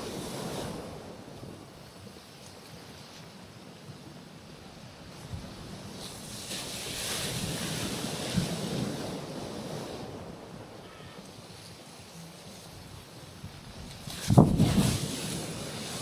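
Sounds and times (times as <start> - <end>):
ocean wave on rocky shore: 0.0 - 2.1, 4.7 - 16.0
wind on microphone: 4.7 - 10.8, 12.8 - 16.0.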